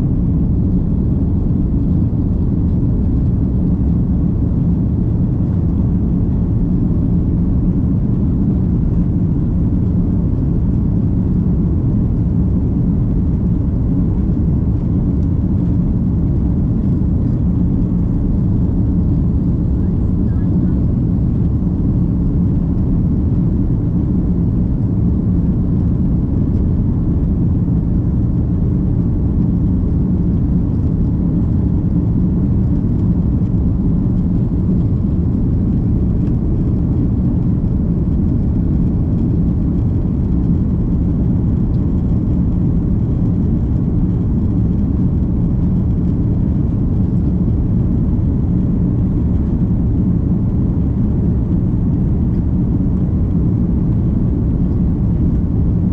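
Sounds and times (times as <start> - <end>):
jet engine cabin rumble: 0.0 - 55.9.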